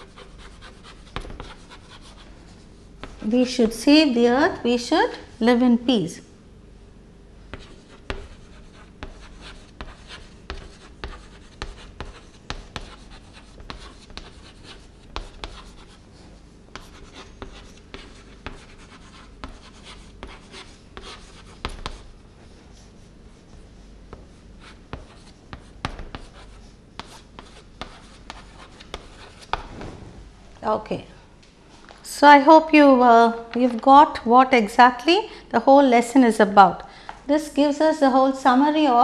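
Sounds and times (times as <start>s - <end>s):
writing on a board: 0.0s - 2.2s, 7.5s - 16.0s, 16.7s - 29.7s.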